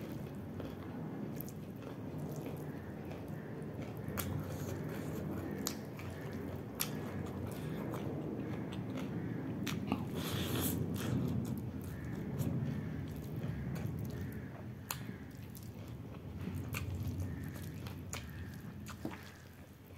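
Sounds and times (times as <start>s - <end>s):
wet chewing of food: 0.0s - 19.9s
mouth and lip clicks: 1.4s - 12.4s.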